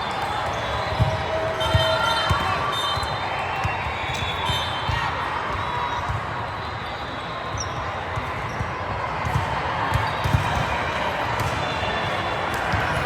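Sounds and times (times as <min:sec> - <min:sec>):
crowd chatter: 0:00.0 - 0:13.0
volleyballs being hit and bouncing: 0:07.5 - 0:13.0.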